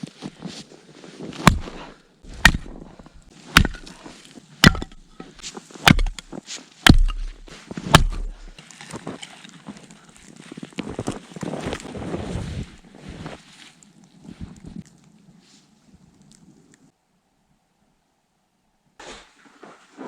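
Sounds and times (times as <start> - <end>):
axe chopping wood: 1.4 - 8.6.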